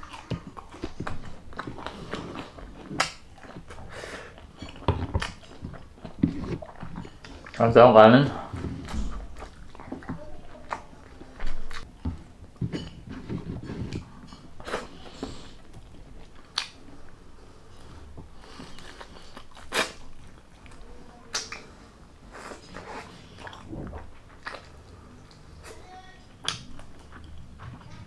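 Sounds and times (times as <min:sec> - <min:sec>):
man chewing: 0:00.0 - 0:07.6, 0:08.3 - 0:28.0
wet mouth smacks: 0:16.5 - 0:16.8, 0:21.3 - 0:21.7.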